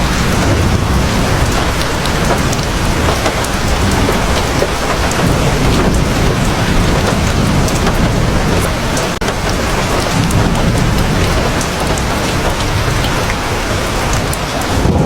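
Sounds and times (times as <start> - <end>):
heavy rain falling: 0.0 - 15.0
deep low rumble: 0.2 - 9.0.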